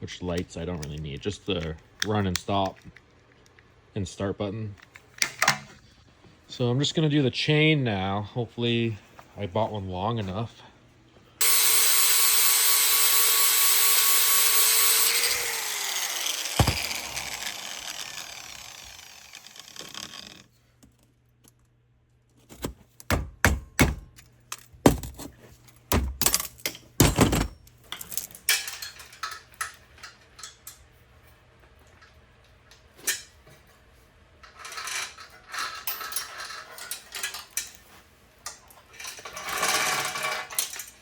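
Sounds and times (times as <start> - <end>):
power tool running and spinning down: 11.4 - 20.5
sharp clanks and clicks: 25.9 - 30.8.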